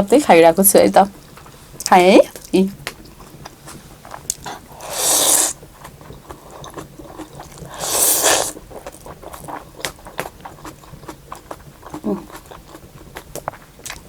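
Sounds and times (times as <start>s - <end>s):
person slurping noodle soup: 4.7s - 5.6s, 6.6s - 8.6s.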